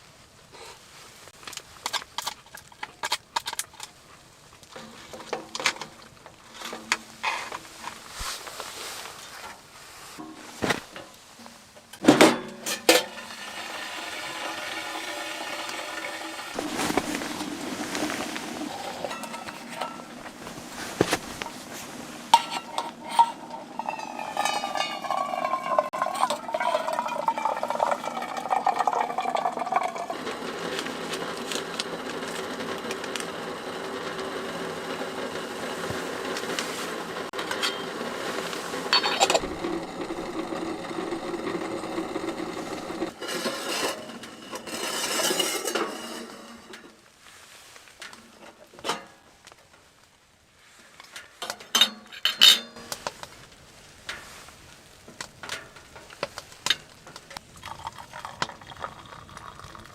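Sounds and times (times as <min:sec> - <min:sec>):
metal cookware clinking: 0:10.2 - 0:13.4, 0:16.0 - 0:30.1, 0:37.4 - 0:46.8, 0:51.4 - 0:52.9
liquid pouring into vessel: 0:13.2 - 0:20.7, 0:22.7 - 0:30.9, 0:38.4 - 0:43.1, 0:57.6 - 0:59.9.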